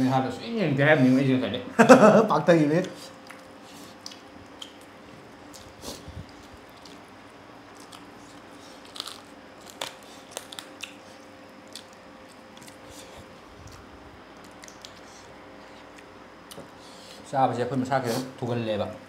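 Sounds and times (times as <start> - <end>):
faint steady hum: 0.0 - 19.0
people chewing and crunching food: 2.7 - 17.3
mouth clicks and smacks: 2.8 - 7.0, 13.7 - 15.1.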